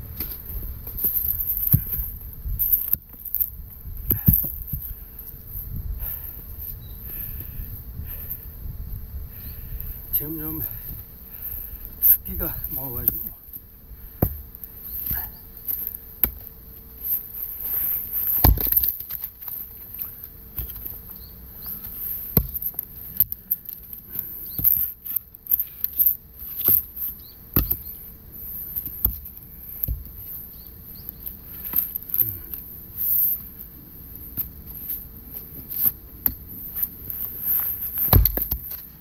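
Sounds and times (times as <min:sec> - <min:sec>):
axe chopping firewood: 0:14.2 - 0:15.3, 0:18.3 - 0:18.9, 0:22.3 - 0:22.7, 0:38.0 - 0:38.8.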